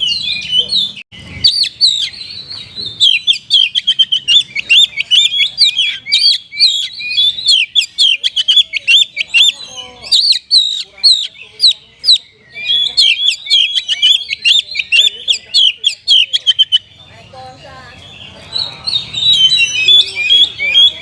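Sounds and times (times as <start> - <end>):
magpie-robin singing: 0.0 - 21.0.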